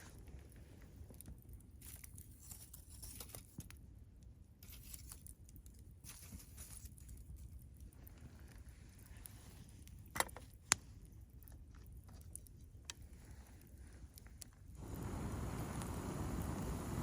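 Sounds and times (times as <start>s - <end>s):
campfire crackling: 0.0s - 2.5s, 5.1s - 17.0s
fire popping and snapping: 0.0s - 17.0s
low steady rumble: 13.0s - 17.0s.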